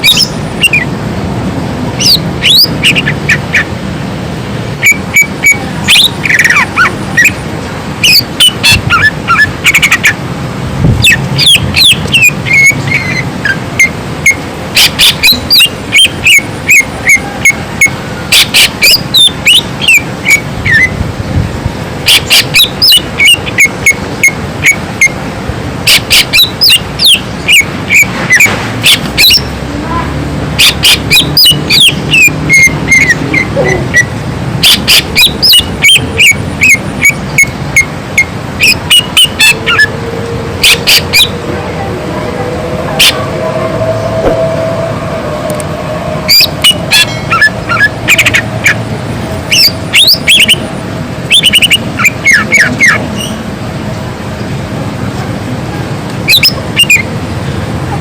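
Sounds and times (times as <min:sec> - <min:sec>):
bird singing whistled song: 0:00.0 - 0:00.9, 0:13.8 - 0:20.9.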